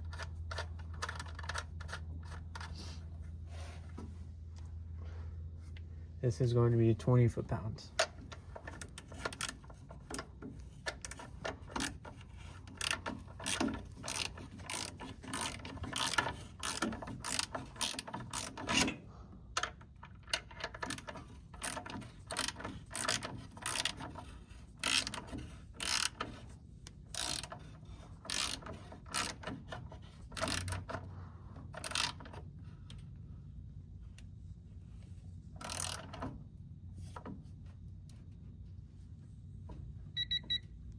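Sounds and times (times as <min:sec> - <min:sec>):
ratchet wrench clicking: 0:08.5 - 0:18.9, 0:19.6 - 0:26.4, 0:27.1 - 0:29.6, 0:30.2 - 0:31.0, 0:31.8 - 0:33.0, 0:35.6 - 0:36.2.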